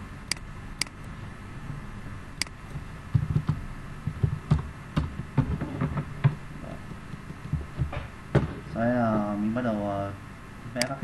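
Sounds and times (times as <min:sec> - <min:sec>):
dull thumps on desk: 0:03.1 - 0:08.7.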